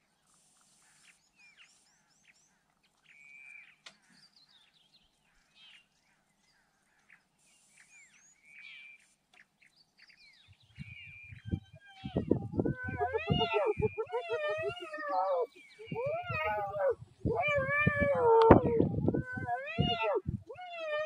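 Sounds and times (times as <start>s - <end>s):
birds chirping: 9.4s - 20.3s.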